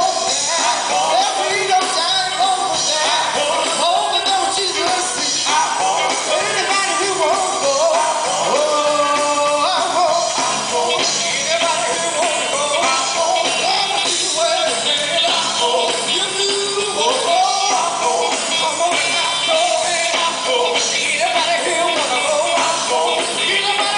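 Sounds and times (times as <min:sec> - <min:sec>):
band accompaniment: 0:00.0 - 0:23.9
gospel group singing: 0:00.0 - 0:23.9.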